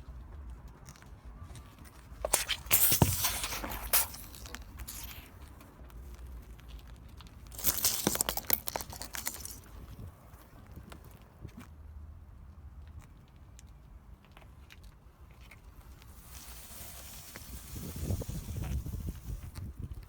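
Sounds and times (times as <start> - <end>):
tyre crushing brittle objects: 2.2 - 5.4, 7.4 - 9.8.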